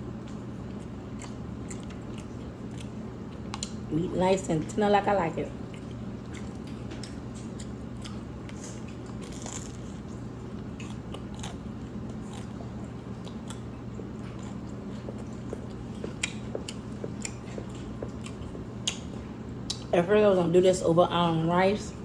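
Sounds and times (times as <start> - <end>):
chewing and biting noodles: 0.3 - 3.9, 5.7 - 19.8
wet mouth clicks and smacks: 15.2 - 19.9.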